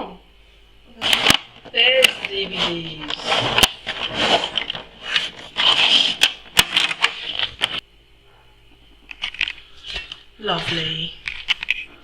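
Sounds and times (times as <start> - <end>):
box packaging rustling and scraping: 1.0 - 7.8, 9.1 - 12.0
plastic cases clicking: 1.0 - 7.8.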